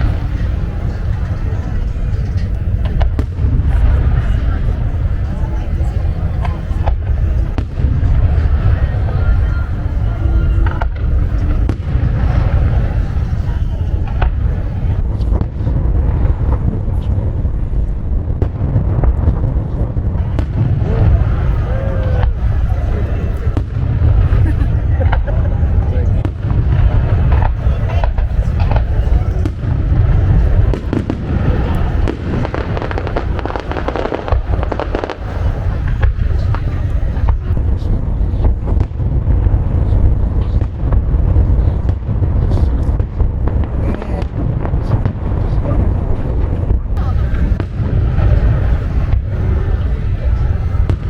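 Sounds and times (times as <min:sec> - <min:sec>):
fireworks booming: 0:00.0 - 0:51.0
fireworks cracking: 0:00.0 - 0:51.0.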